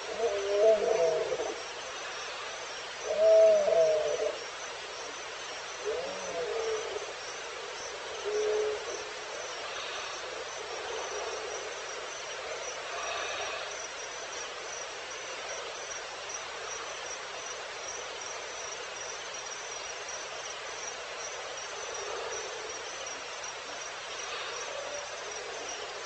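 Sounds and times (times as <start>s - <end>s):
crickets chirping: 0.0s - 26.0s
night insects hissing: 0.0s - 26.0s.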